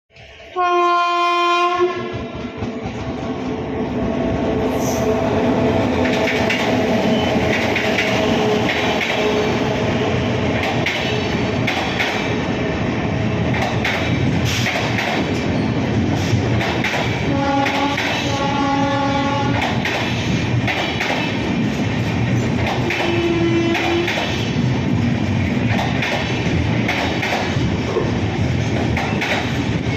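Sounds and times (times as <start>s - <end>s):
train rumbling: 0.1s - 29.9s
locomotive horn blast: 0.5s - 2.2s, 17.3s - 19.6s, 22.9s - 24.1s
train wheels clicking over rail joints: 5.9s - 9.6s, 10.5s - 12.5s, 13.3s - 29.9s.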